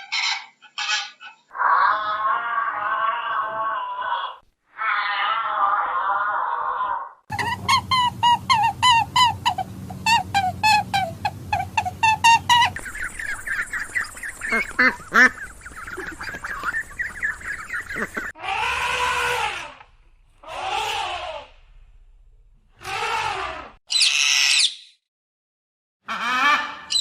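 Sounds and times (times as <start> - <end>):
ducks quacking: 7.3 - 19.6
high peeping chorus: 7.6 - 18.3.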